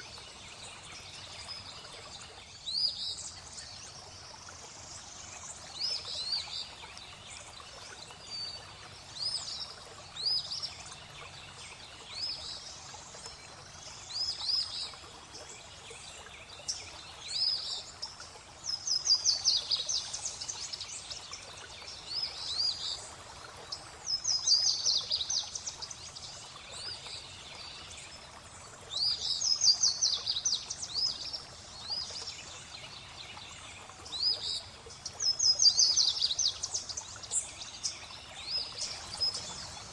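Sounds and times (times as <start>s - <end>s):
flowing water: 0.0s - 39.9s
birds singing: 29.0s - 39.9s.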